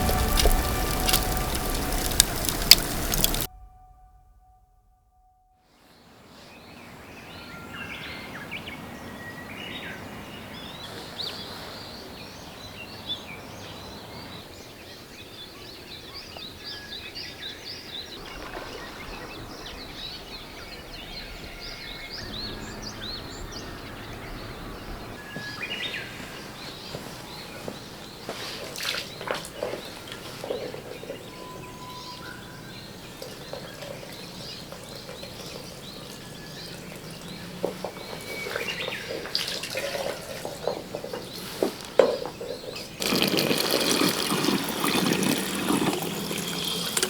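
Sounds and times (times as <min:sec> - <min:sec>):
outdoor hiss: 0:00.0 - 0:03.5
small birds chirping: 0:17.3 - 0:43.4.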